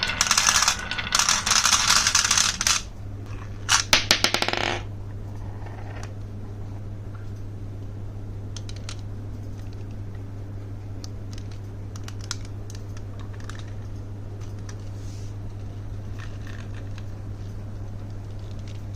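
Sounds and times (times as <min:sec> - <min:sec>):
marbles clicking on wooden run: 0:00.0 - 0:02.9
steady low hum: 0:00.0 - 0:18.9.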